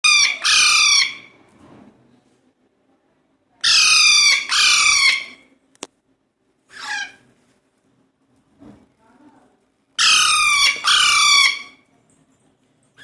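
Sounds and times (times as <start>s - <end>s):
parakeet chicks squawking: 0.0s - 1.3s, 3.6s - 5.4s, 6.7s - 7.2s, 10.0s - 11.8s.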